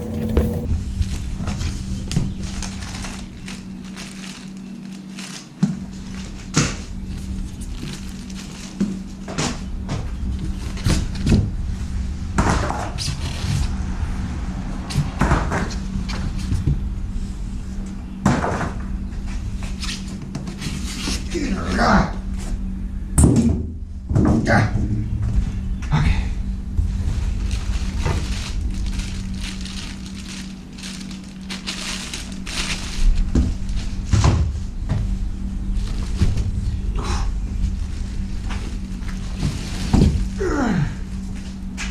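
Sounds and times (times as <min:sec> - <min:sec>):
packing rustling and scraping: 0:00.0 - 0:11.4, 0:26.9 - 0:34.6, 0:35.7 - 0:40.4
steady low hum: 0:00.0 - 0:41.9
packaging crinkling: 0:02.5 - 0:06.5, 0:27.4 - 0:34.0.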